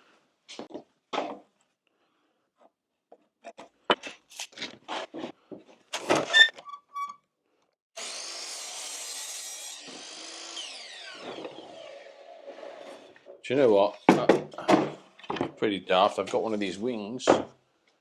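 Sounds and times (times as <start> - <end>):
power saw cutting wood: 8.0 - 13.3.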